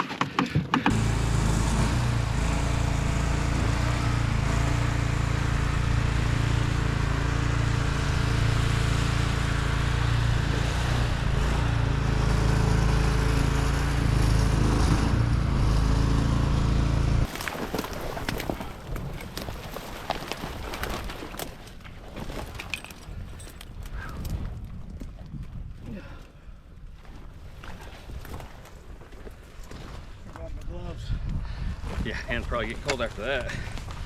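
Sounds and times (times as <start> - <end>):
small engine running: 0.8 - 17.3.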